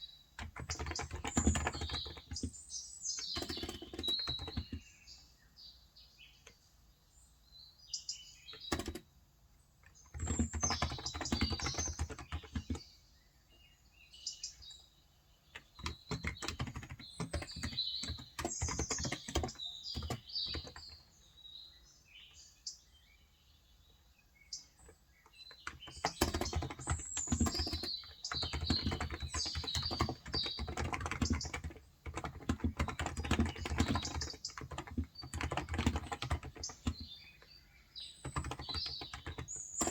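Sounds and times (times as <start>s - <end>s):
small birds chirping: 0.0s - 39.9s
keyboard typing: 0.4s - 4.9s, 8.5s - 9.1s, 9.8s - 12.8s, 15.5s - 21.0s, 24.8s - 39.9s.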